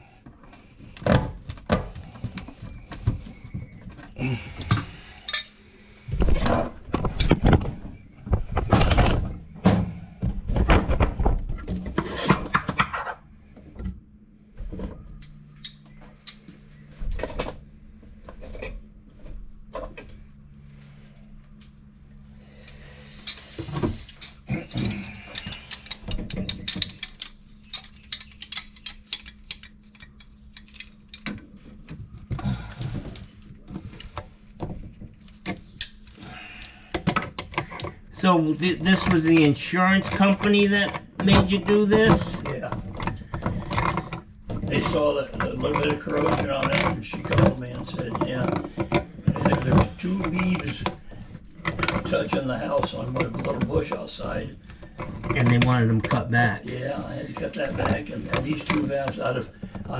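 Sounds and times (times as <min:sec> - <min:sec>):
steady low hum: 0:00.0 - 0:59.9
metal tools clinking and knocking: 0:23.2 - 0:31.6.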